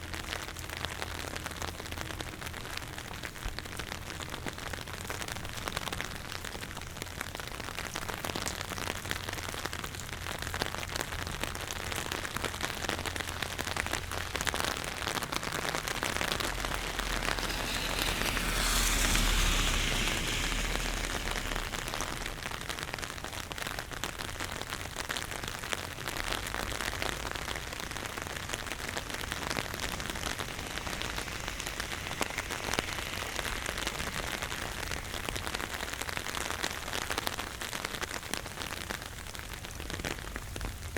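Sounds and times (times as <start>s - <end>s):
rain drops striking close by: 0.0s - 40.9s
steady rain falling: 0.0s - 40.9s
rushing swell with low rumble: 11.3s - 24.5s, 26.7s - 37.3s.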